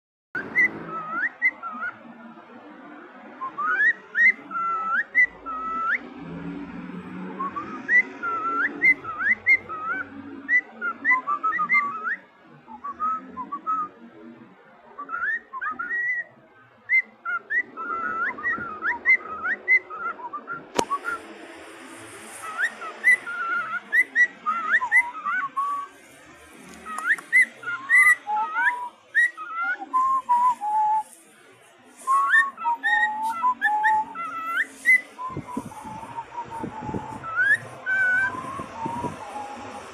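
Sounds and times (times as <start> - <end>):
cockatiels whistling: 0.4 - 2.0, 3.4 - 6.0, 7.4 - 12.2, 15.0 - 16.3, 16.9 - 21.4, 22.0 - 26.0, 26.6 - 31.1, 32.0 - 39.9.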